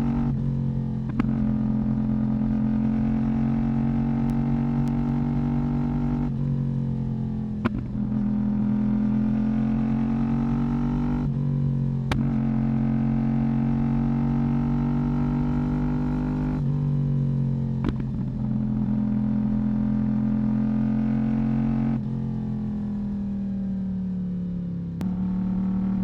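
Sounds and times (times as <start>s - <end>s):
motorcycle engine cruising: 0.0s - 26.0s.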